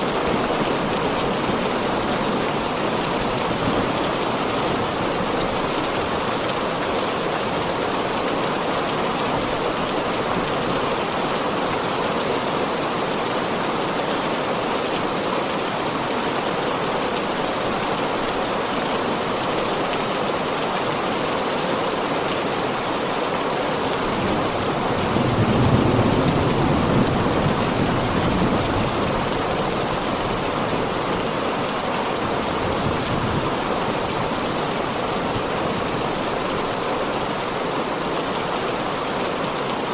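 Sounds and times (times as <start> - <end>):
heavy rain: 0.0 - 39.9
low rumble of thunder: 24.2 - 29.9.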